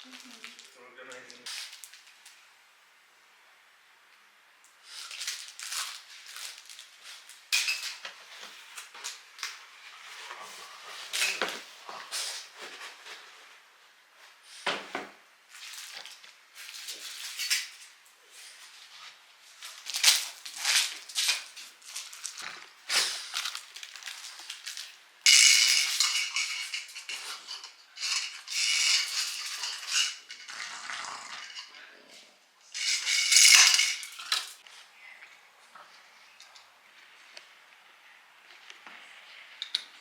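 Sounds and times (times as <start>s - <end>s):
clicks and clatter of small items: 5.0s - 9.6s, 19.6s - 30.6s, 32.8s - 34.6s.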